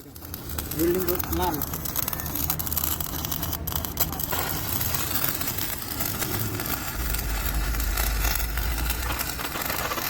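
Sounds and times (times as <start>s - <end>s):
welding arc crackling: 0.0s - 10.0s
low hum: 5.5s - 10.0s.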